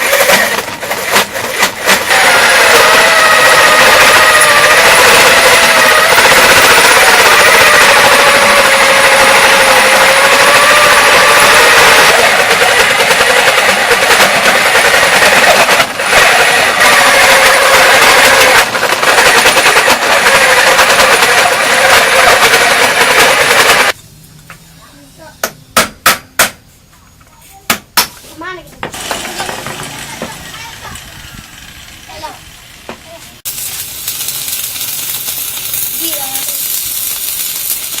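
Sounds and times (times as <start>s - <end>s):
lathe whirring: 0.0s - 24.0s, 29.0s - 32.7s.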